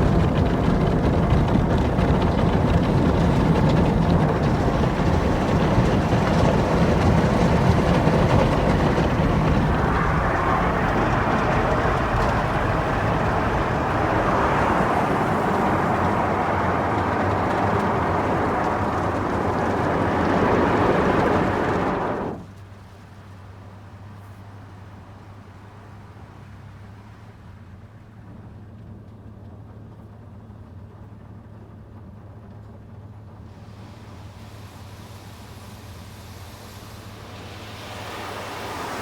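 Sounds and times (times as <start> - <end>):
car wash machine and water rush: 0.0 - 27.9, 33.4 - 39.0.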